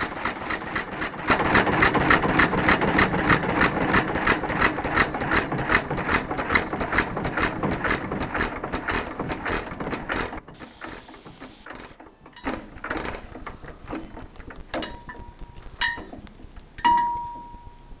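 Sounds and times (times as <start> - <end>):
engine running with clicking rhythm: 0.0 - 18.0
short metallic ring: 16.8 - 18.0.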